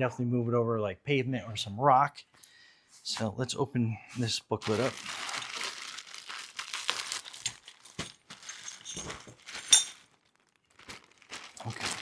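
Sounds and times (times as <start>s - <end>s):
packaging rustling and crinkling: 4.6s - 12.0s.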